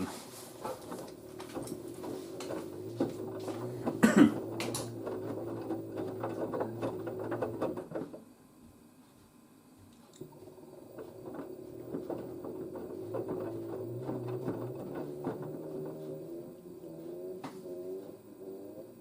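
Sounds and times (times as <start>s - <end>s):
towels tumbling in a drum: 0.0s - 8.2s, 10.2s - 17.0s
washing machine motor humming: 0.0s - 9.0s, 9.6s - 19.0s.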